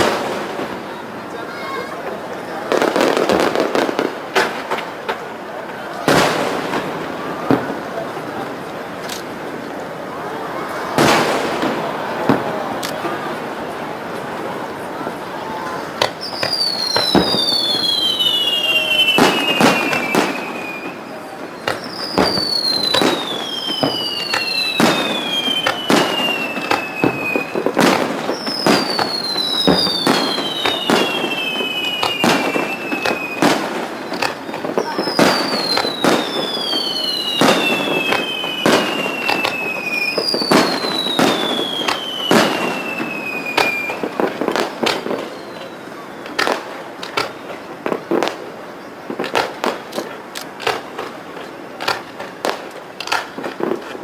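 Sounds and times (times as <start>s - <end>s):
fireworks bangs and crackles: 0.0s - 54.0s
falling firework whistles: 10.1s - 13.6s, 14.6s - 48.4s.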